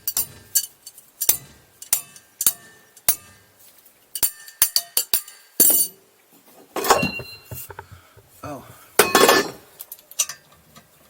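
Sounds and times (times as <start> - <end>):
hand tools clinking on metal: 0.0 - 6.0, 6.8 - 10.4
metallic clatter: 6.8 - 9.7.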